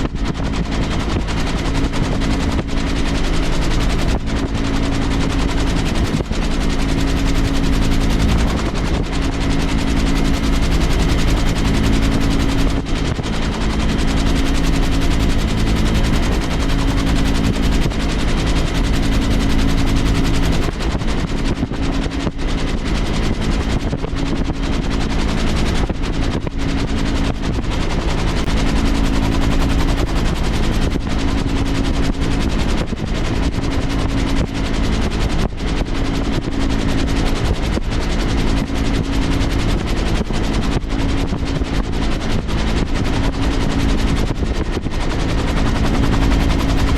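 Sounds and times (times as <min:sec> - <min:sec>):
helicopter rotor chop: 0:00.0 - 0:46.9.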